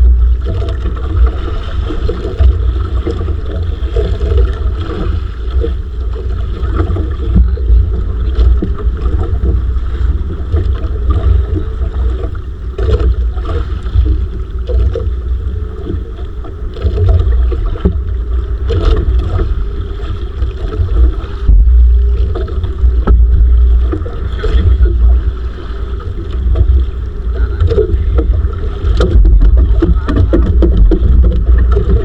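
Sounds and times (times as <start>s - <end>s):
water noise: 0.0s - 32.0s
wind buffeting microphone: 0.0s - 32.0s
short knocks: 27.4s - 32.0s.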